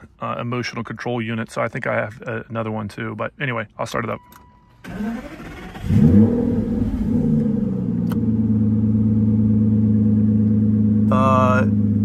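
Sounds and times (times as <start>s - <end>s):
engine starter cranking: 4.8s - 6.2s
car engine revving and idling: 4.9s - 12.0s.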